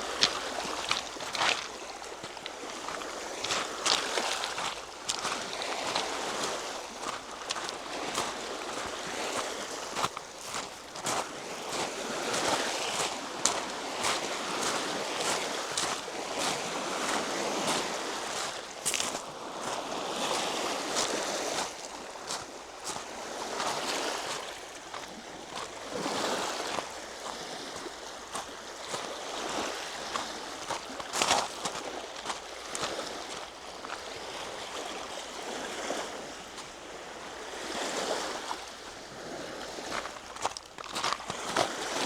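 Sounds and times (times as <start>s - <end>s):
waves washing onto shore: 0.0s - 42.0s
footsteps clicking: 40.0s - 41.4s.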